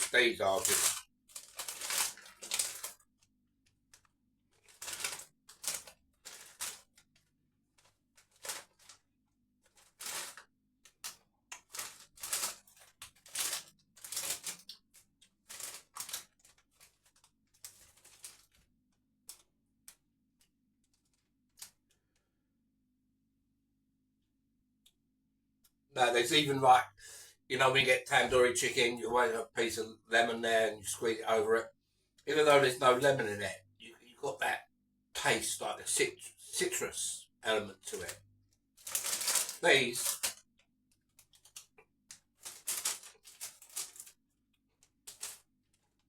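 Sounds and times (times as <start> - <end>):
crisps crunched while chewing: 0.4 - 3.2, 3.9 - 9.0, 9.7 - 18.6, 38.8 - 44.2.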